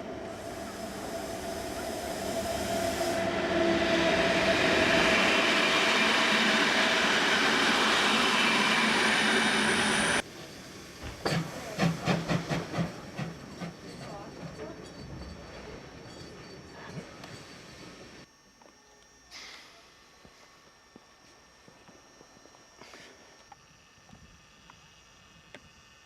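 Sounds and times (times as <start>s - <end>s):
train rumbling past: 0.0s - 18.1s.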